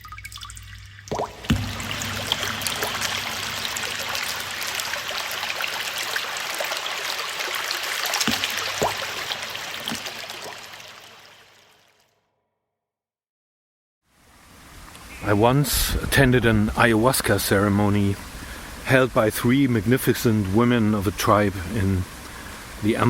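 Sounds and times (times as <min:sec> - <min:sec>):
flowing splashing water: 0:00.0 - 0:12.0
sharp splash: 0:01.1 - 0:11.9.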